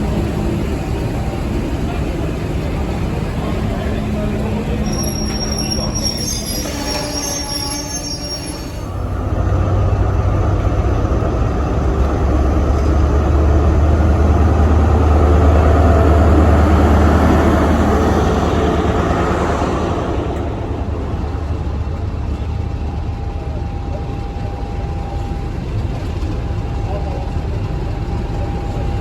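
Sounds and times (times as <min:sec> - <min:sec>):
diesel train engine drone: 0:00.0 - 0:29.0
train high squealing: 0:03.7 - 0:09.2.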